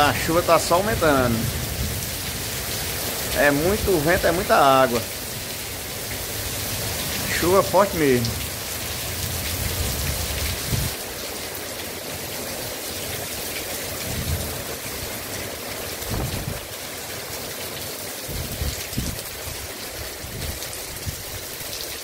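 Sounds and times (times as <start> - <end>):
heavy rain pouring: 0.0 - 22.0
wind gusts buffeting microphone: 9.6 - 11.0, 16.0 - 16.7, 18.3 - 19.5.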